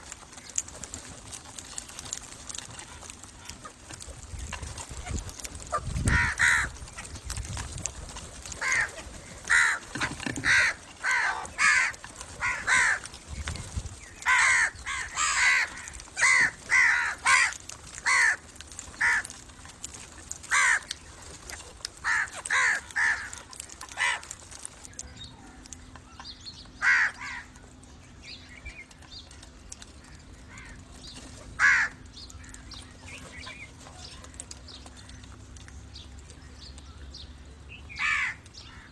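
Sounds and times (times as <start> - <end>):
crows cawing: 5.7 - 7.1, 8.5 - 13.2, 14.2 - 19.4, 20.4 - 21.0, 22.0 - 24.4, 26.8 - 27.6, 30.5 - 30.8, 31.6 - 32.6, 38.0 - 38.9.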